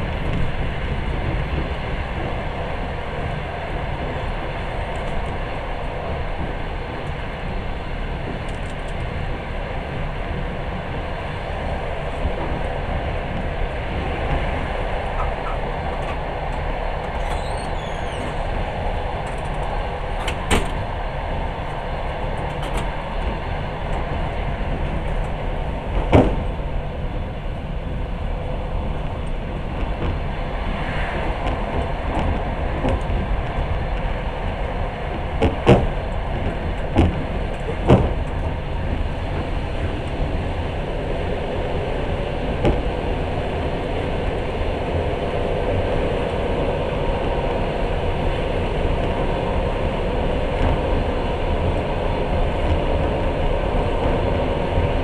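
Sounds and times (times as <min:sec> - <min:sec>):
train rumbling on rails: 0:00.0 - 0:55.0
sharp knocks of train wheels: 0:11.7 - 0:26.8, 0:28.8 - 0:40.6, 0:41.6 - 0:44.4.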